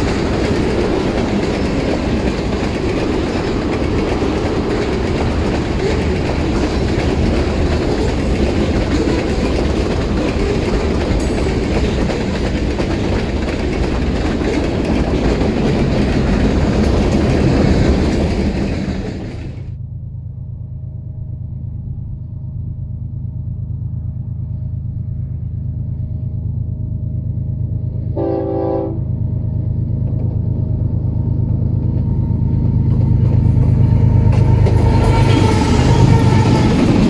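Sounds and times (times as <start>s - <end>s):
train wheels rolling on rails: 0.0s - 19.8s, 29.2s - 37.0s.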